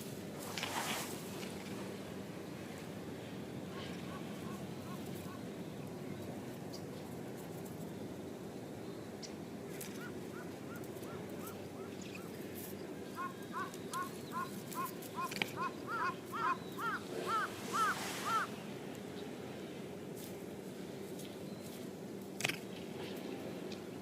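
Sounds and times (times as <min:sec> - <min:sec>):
bird calling short arched notes: 0:13.2 - 0:18.5.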